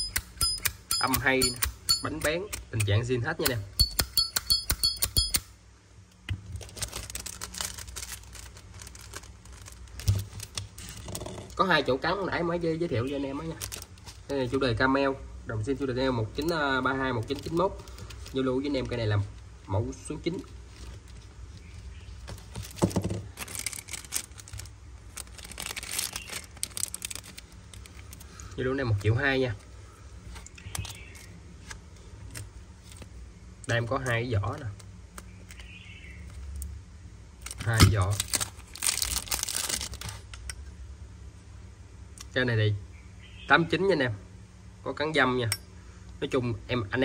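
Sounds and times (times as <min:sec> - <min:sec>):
crinkling and rustling: 0:06.1 - 0:11.9, 0:12.9 - 0:14.6, 0:16.3 - 0:36.8, 0:37.4 - 0:40.4.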